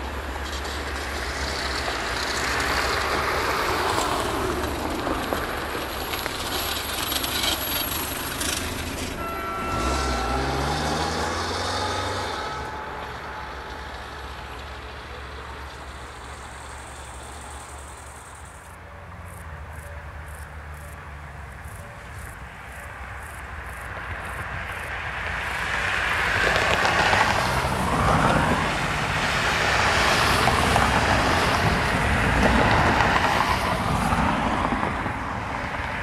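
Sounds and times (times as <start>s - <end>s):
train wheels rumbling on rails: 0.0s - 18.8s, 21.6s - 36.0s
engine note rising in pitch: 8.9s - 16.8s.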